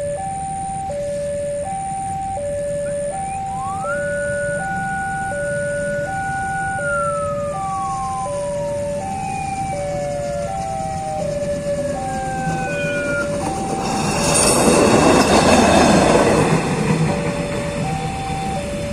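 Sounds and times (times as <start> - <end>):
tone sliding down in pitch: 0.0 - 18.9
two-tone ambulance siren: 0.0 - 18.9.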